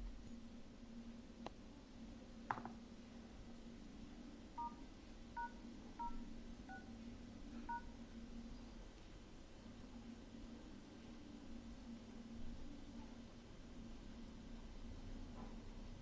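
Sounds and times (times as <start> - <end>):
faint steady hum: 0.0 - 16.0
phone keypad dialing beeps: 4.6 - 4.8, 5.4 - 6.9.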